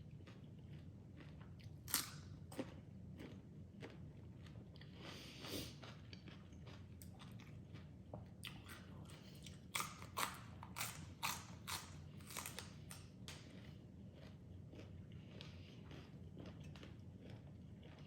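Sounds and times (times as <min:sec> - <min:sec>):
chewing crunchy vegetables: 0:00.0 - 0:18.0
soft chewing: 0:00.0 - 0:18.0.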